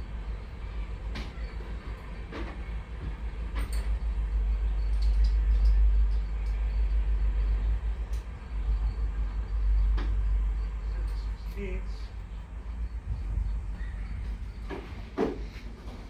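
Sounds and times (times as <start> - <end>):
wind buffeting microphone: 12.0 - 16.0.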